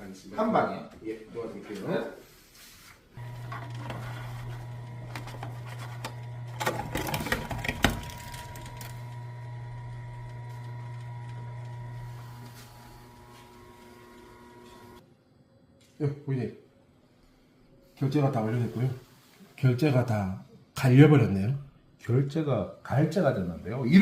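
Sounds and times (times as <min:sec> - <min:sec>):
electric shredder running: 0:03.2 - 0:15.0
shredder crunching card: 0:03.2 - 0:15.0.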